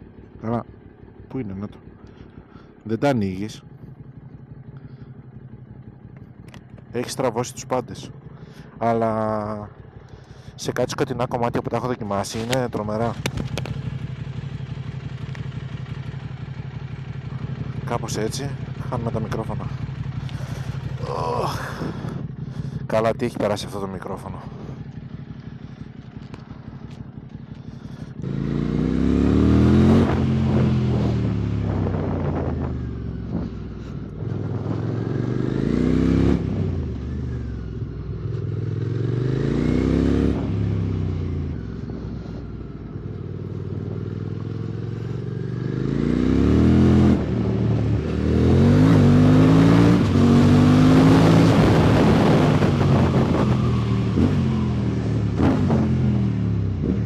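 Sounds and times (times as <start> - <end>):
motorcycle engine idling and revving: 0.0 - 57.0
wind noise on microphone: 31.6 - 33.6, 51.3 - 54.4.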